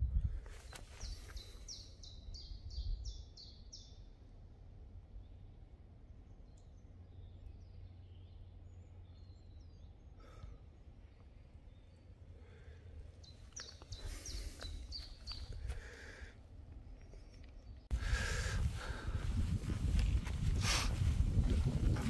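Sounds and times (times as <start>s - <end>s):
songbird singing: 0.0s - 22.0s
steady low rumble: 14.0s - 22.0s.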